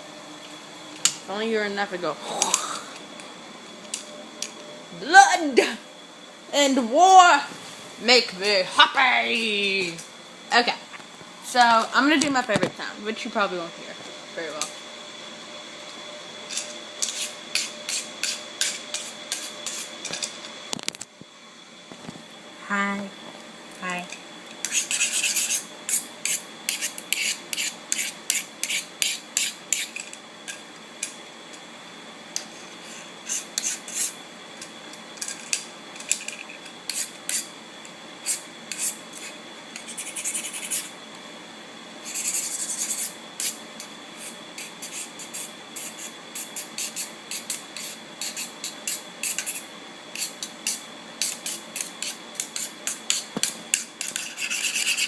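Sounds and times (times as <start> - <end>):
scratching and rubbing strokes: 24.6 - 30.0, 38.2 - 40.9, 42.0 - 43.6, 44.2 - 49.6, 54.0 - 55.0.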